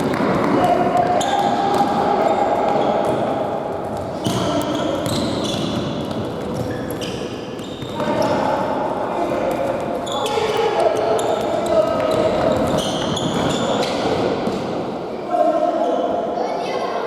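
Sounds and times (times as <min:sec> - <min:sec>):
shoes squeaking: 0:04.0 - 0:08.6, 0:09.4 - 0:14.6.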